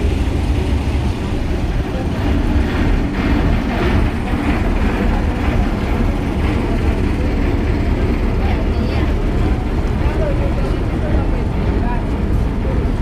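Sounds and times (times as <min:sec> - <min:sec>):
engine rumbling: 0:00.0 - 0:13.0
indistinct voices: 0:00.0 - 0:13.0.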